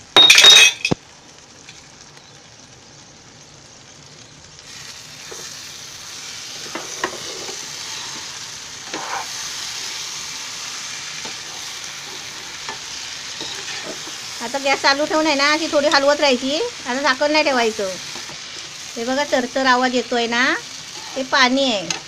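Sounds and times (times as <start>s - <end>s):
vegetables sizzling in a pan: 0.0s - 22.0s
spatula scraping and tapping pan: 6.6s - 9.4s, 11.2s - 15.0s.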